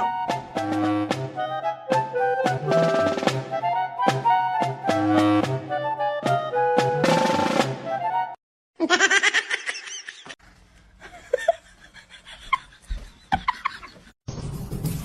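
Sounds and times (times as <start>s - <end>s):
instrumental music: 0.0s - 8.4s.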